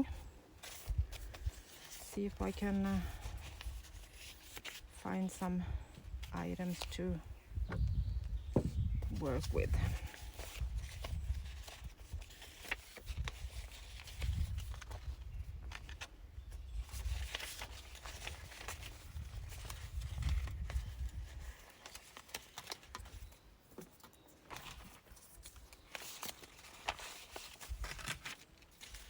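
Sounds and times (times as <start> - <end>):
wind buffeting microphone: 5.5 - 11.9, 14.2 - 15.8, 19.0 - 21.4.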